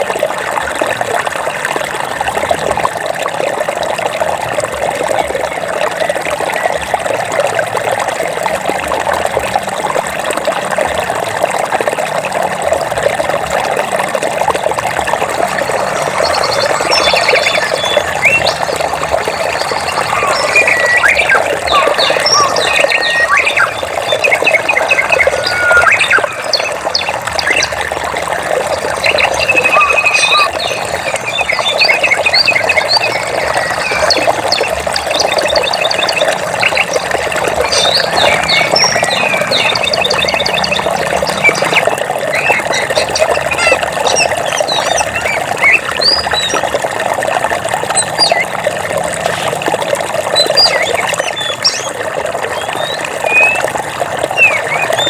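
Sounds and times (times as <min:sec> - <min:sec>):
running water: 0:00.0 - 0:55.0
birds chirping and trilling: 0:15.3 - 0:28.0, 0:28.6 - 0:46.8, 0:47.9 - 0:48.5, 0:50.3 - 0:52.0, 0:52.6 - 0:53.7, 0:54.3 - 0:55.0.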